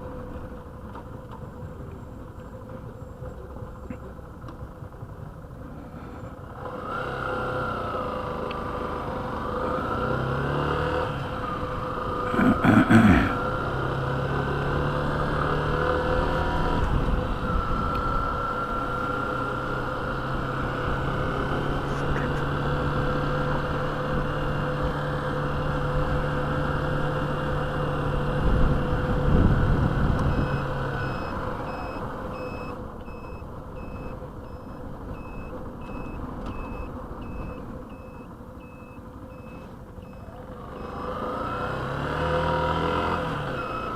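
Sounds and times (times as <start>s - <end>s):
motorcycle engine: 0.0s - 43.9s
electronic beeping: 30.3s - 41.7s, 43.5s - 43.9s.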